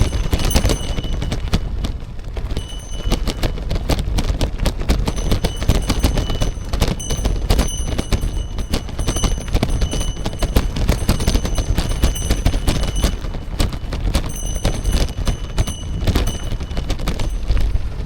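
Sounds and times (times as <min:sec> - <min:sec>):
thin high tone: 0:00.0 - 0:01.6, 0:02.6 - 0:03.9, 0:05.1 - 0:17.6
bicycle clicks and knocks: 0:05.0 - 0:17.6.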